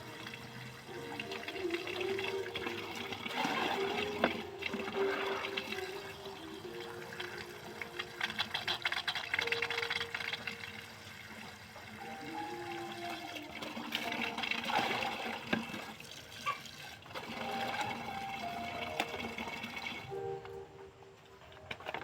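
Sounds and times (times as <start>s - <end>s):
water running: 0.0s - 20.3s.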